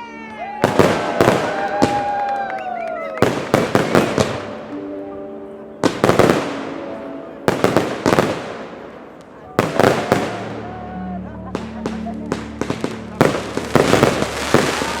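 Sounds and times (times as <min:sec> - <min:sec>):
fireworks bursting with bangs: 0:00.6 - 0:02.3, 0:03.2 - 0:04.8, 0:05.8 - 0:06.8, 0:07.5 - 0:10.7, 0:11.4 - 0:15.0.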